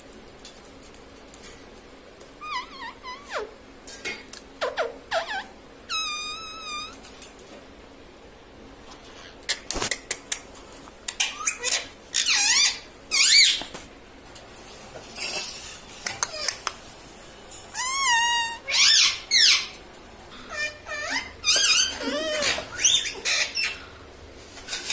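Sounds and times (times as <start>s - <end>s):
parrot squawking and chirping: 2.4s - 3.6s, 4.6s - 7.0s, 11.1s - 13.7s, 17.7s - 19.8s, 20.5s - 23.9s.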